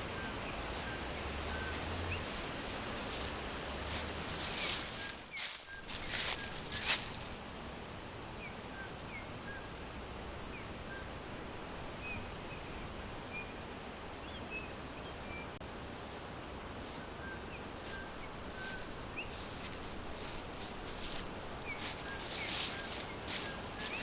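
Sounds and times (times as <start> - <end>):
soft rustles: 0.0 - 7.7, 15.2 - 24.0
forest background hiss: 0.0 - 24.0
songbirds chirping: 0.0 - 24.0.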